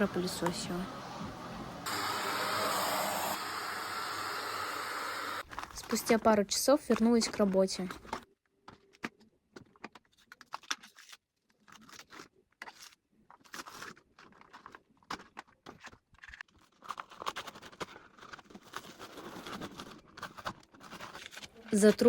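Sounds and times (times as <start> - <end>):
wallpaper being scraped and torn: 10.5 - 22.0.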